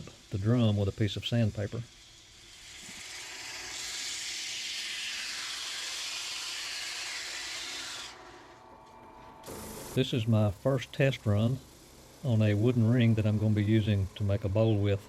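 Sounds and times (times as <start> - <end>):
sandpaper hissing on spinning wood: 0.0 - 8.6, 9.5 - 15.0.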